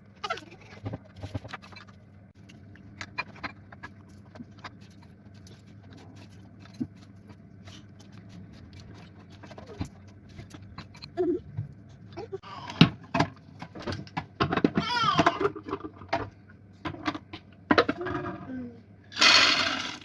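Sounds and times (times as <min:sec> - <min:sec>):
kitchen items clicking and knocking: 0:08.7 - 0:18.5.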